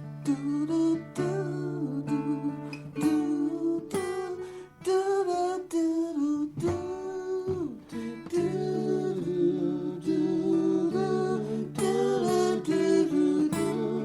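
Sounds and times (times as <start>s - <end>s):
nylon-string guitar: 0.0s - 14.0s
slide guitar: 0.0s - 14.0s
wordless vocal humming: 0.2s - 14.0s.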